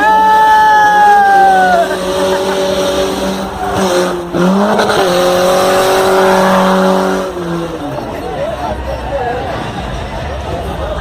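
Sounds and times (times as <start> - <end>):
car engine revving hard: 1.3 - 8.3.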